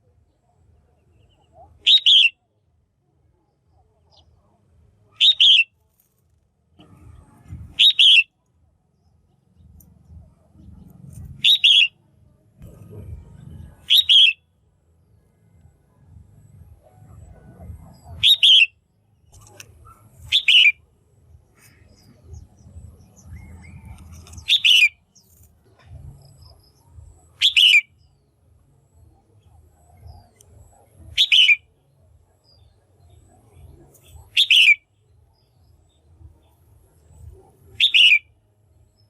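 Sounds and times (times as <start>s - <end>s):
bird calling: 1.2s - 2.4s, 5.2s - 5.7s, 7.7s - 8.3s, 11.2s - 12.0s, 13.7s - 14.4s, 17.1s - 18.7s, 19.3s - 20.8s, 21.5s - 28.1s, 31.1s - 31.7s, 34.0s - 34.8s, 37.7s - 38.3s
faint low rumble: 5.9s - 39.0s.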